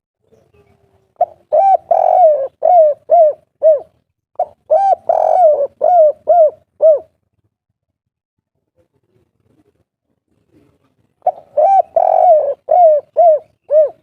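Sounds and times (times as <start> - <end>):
dove cooing: 1.2 - 7.2, 11.2 - 14.0.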